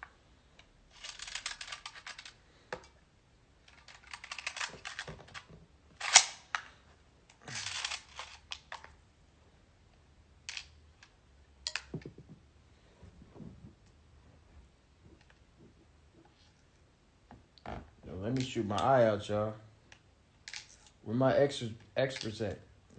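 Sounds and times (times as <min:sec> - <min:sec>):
plastic parts rattling and clicking: 0:00.6 - 0:03.0, 0:03.6 - 0:09.0.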